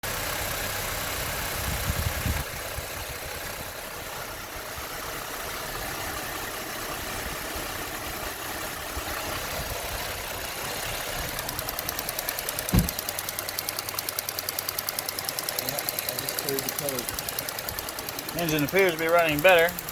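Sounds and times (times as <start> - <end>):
car engine idling unevenly: 0.0 - 19.9
fast even ticking: 11.0 - 19.9.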